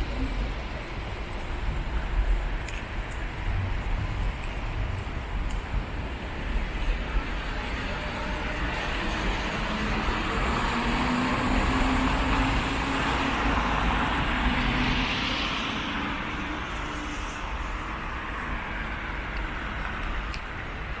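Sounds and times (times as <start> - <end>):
passing vehicle engine hum: 6.5 - 17.5.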